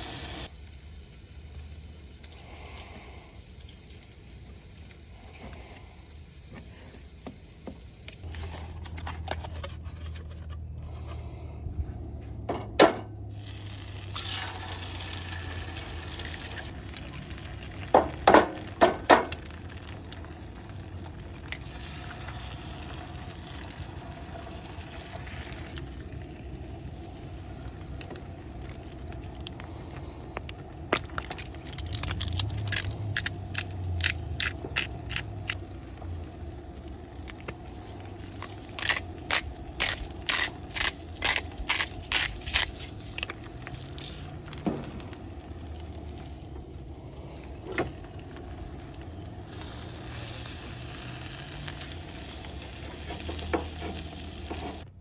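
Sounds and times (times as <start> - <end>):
food sizzling in a pan: 0.0 - 8.3, 13.3 - 29.3, 48.4 - 54.9.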